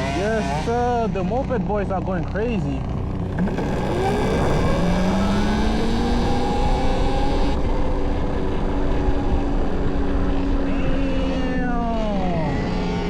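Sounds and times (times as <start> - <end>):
electric motor whining: 2.8 - 10.6
wind on microphone: 2.9 - 12.8.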